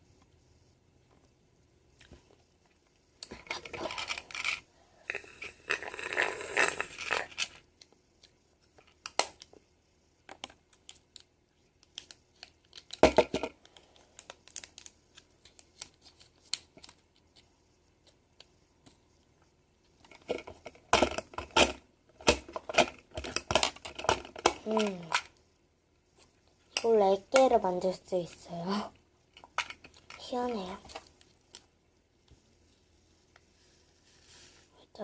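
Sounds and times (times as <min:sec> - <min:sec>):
small parts clicking and tapping: 0:10.2 - 0:19.0, 0:19.9 - 0:25.4.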